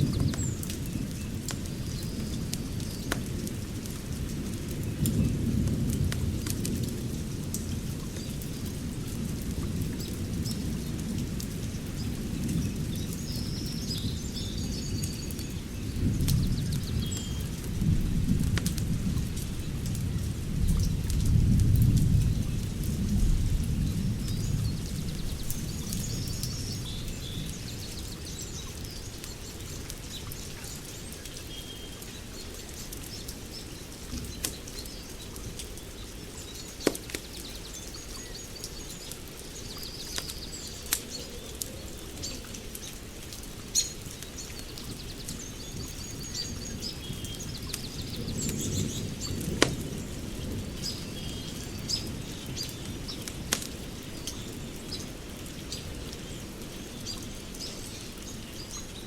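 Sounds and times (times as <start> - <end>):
wood fire crackling and popping: 0.0 - 12.6, 16.1 - 28.0, 28.6 - 34.9, 35.5 - 37.6, 39.1 - 44.4, 47.5 - 50.7, 52.0 - 55.6
birds chirping: 43.6 - 59.0.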